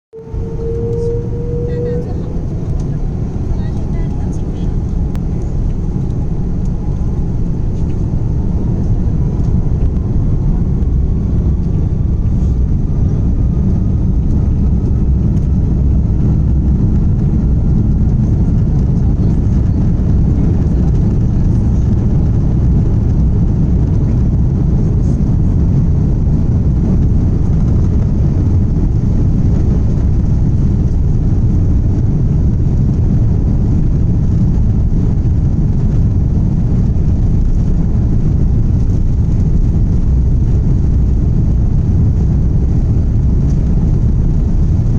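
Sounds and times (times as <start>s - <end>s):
rising engine whine: 0.0s - 44.9s
jet engines rumbling: 0.1s - 44.9s.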